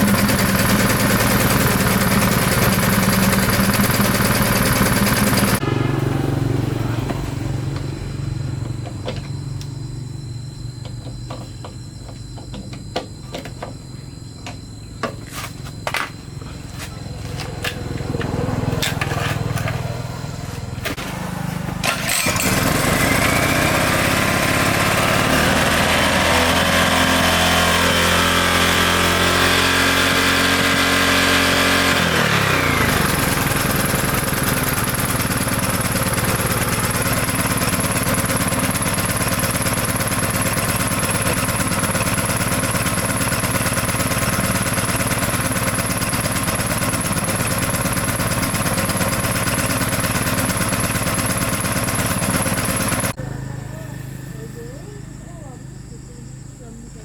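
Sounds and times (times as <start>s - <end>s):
small generator engine running: 0.0s - 57.0s.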